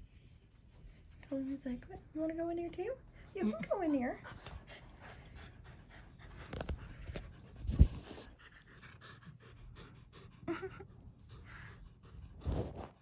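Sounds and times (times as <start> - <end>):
dog panting: 3.0 - 13.0.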